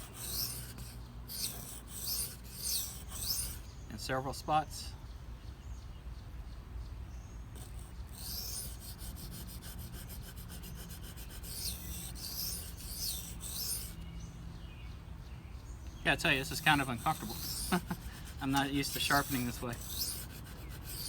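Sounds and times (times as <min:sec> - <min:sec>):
knife blade scraping on whetstone: 0:00.0 - 0:03.6, 0:07.6 - 0:14.0, 0:16.4 - 0:21.0.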